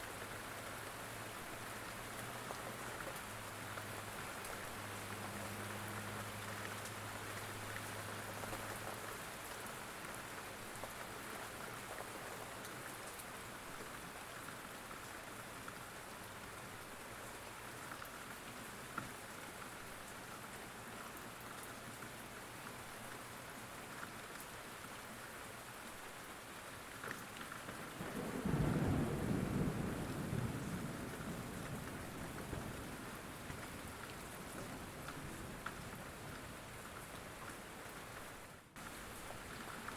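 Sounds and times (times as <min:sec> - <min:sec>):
steady rain falling: 0:00.0 - 0:39.9
low thunder roll: 0:28.0 - 0:33.2.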